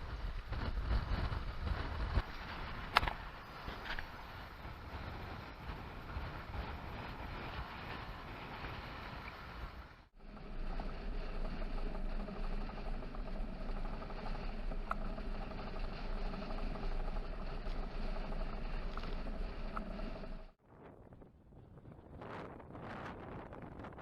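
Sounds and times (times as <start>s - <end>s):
low steady hum: 0.0s - 23.7s
wind: 0.0s - 24.0s.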